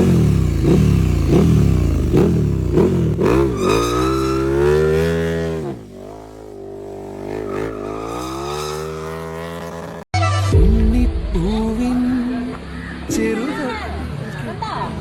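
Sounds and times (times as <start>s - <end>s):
motorcycle engine revving: 0.0s - 10.1s.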